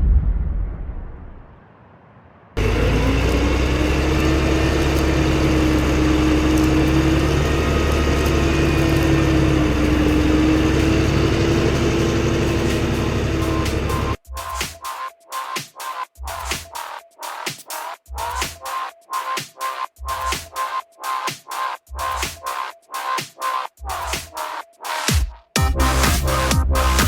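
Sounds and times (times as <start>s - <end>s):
low boom: 0.0s - 2.4s
tractor diesel engine running: 2.6s - 14.2s.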